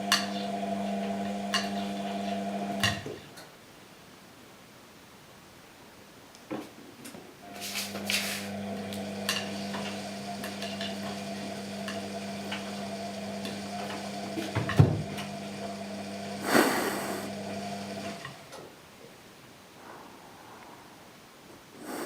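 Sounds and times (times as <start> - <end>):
washing machine motor hum: 0.0 - 3.0, 7.4 - 16.6, 17.2 - 18.6
brief hiss: 16.4 - 17.3.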